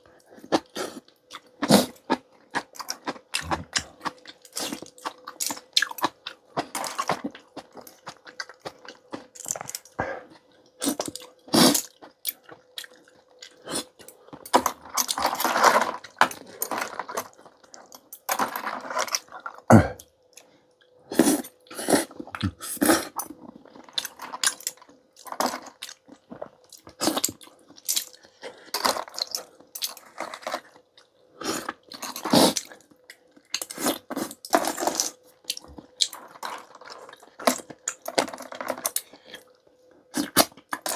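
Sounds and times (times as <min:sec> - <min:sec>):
chewing: 0:00.4 - 0:18.1.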